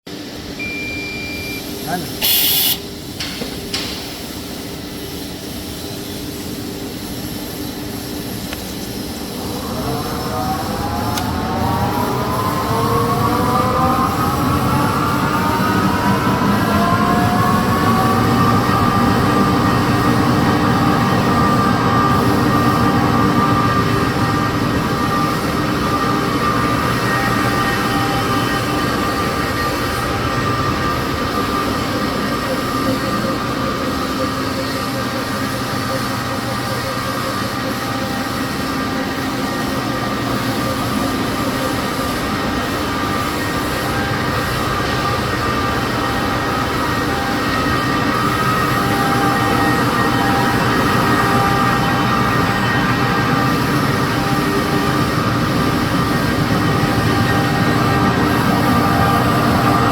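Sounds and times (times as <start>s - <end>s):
machine mechanical drone: 0.1s - 59.9s
motor whine rising in pitch: 0.6s - 2.8s.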